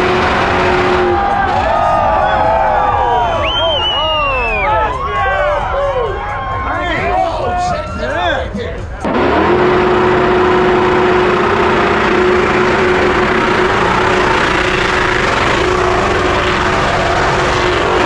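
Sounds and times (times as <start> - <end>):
car engine running: 0.0 - 4.7, 8.5 - 18.0
steady whine: 0.0 - 5.1, 8.8 - 18.0.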